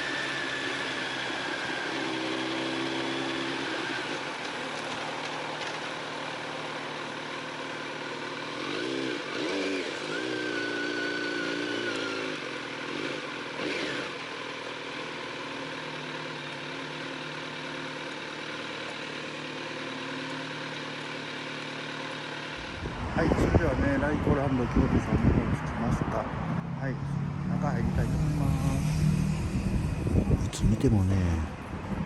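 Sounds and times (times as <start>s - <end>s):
motorcycle engine revving: 8.0s - 16.6s, 26.6s - 30.4s.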